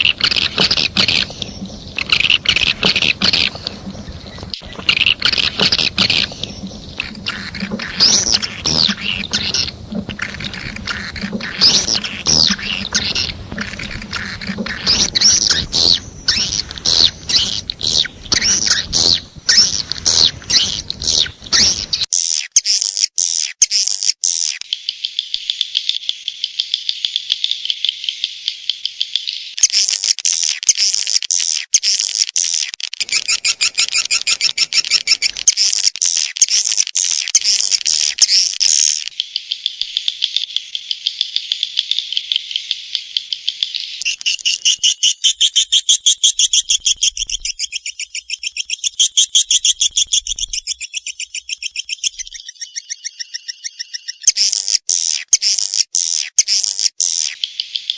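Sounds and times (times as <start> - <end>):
swiftlet chittering chirps: 0.0 - 22.1, 33.0 - 35.8.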